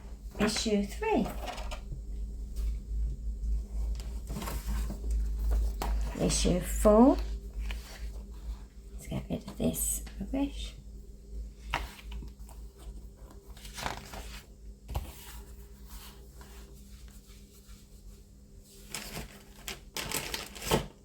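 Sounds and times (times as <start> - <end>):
packaging rustling: 13.3 - 14.5, 18.8 - 21.0.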